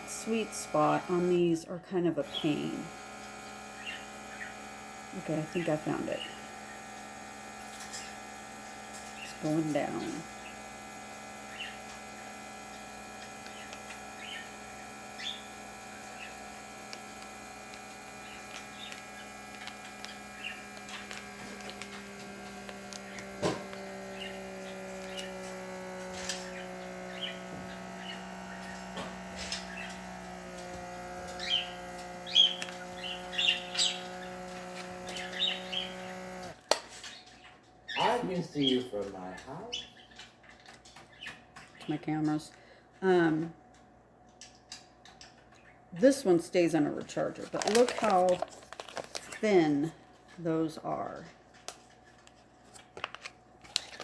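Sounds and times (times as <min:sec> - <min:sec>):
vacuum sealer motor running: 0:00.0 - 0:37.2, 0:37.9 - 0:39.7, 0:46.0 - 0:50.1, 0:50.9 - 0:54.0
birds chirping: 0:03.6 - 0:04.8, 0:09.0 - 0:10.7, 0:11.3 - 0:12.4, 0:13.3 - 0:16.6, 0:23.0 - 0:25.4, 0:26.4 - 0:30.2, 0:31.3 - 0:36.3, 0:37.0 - 0:42.1.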